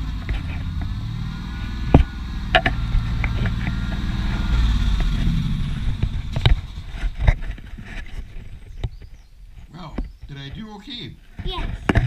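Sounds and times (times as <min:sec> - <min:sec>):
tractor engine running: 0:00.0 - 0:11.0
sharp knocks: 0:01.8 - 0:09.1.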